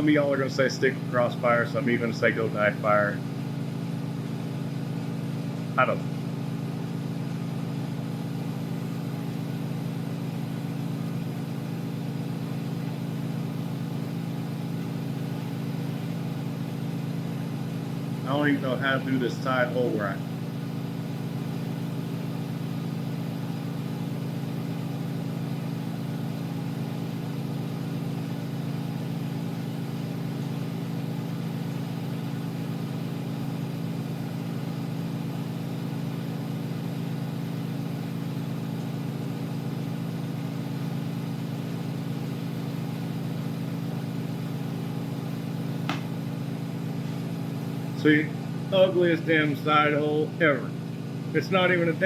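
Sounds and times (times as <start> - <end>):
gas burner and blower humming: 0.0 - 52.0
small click: 45.9 - 46.1.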